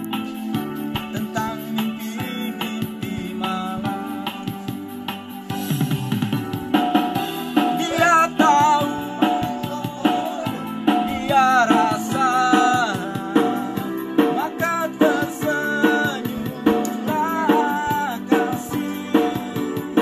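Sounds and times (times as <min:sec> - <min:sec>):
drums and guitar backing: 0:00.0 - 0:20.0
person singing with ornamented pitch: 0:00.3 - 0:04.7, 0:07.2 - 0:20.0.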